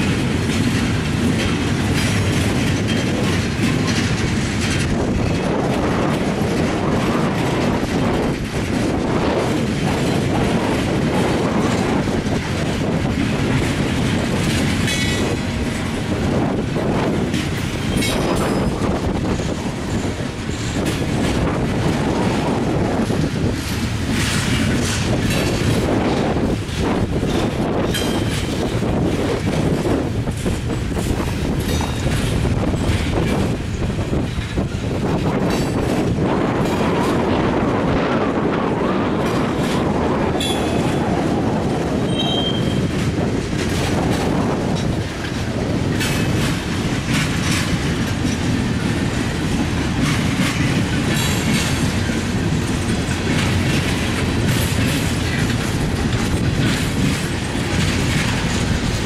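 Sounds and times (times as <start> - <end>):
wheels clacking over rail joints: 0.0 - 59.0
wheel squeals: 42.0 - 42.9.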